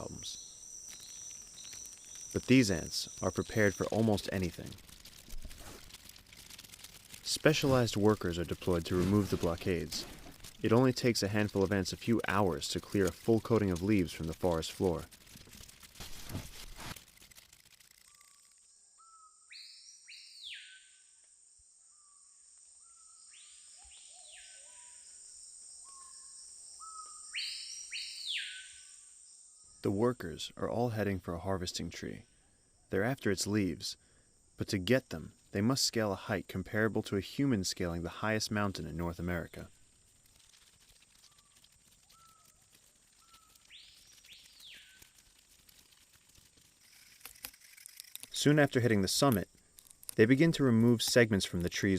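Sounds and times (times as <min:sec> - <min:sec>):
high whistled bird calls: 0:00.0 - 0:04.8, 0:19.0 - 0:21.0, 0:25.8 - 0:29.0, 0:42.1 - 0:42.6, 0:43.2 - 0:45.1
rainforest ambience: 0:00.0 - 0:51.9
high-pitched insect drone: 0:45.8 - 0:48.6.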